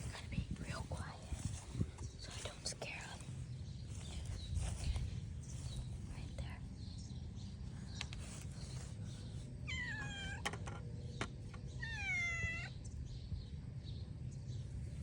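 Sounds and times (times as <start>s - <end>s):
steady low rumble: 0.0s - 15.0s
cat meowing: 9.7s - 10.4s, 11.8s - 12.8s.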